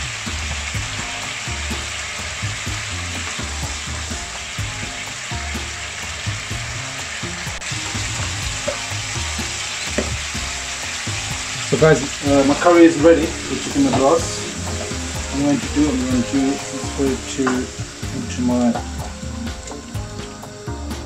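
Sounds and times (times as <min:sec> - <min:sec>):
sauce sizzling and bubbling: 0:00.0 - 0:21.0.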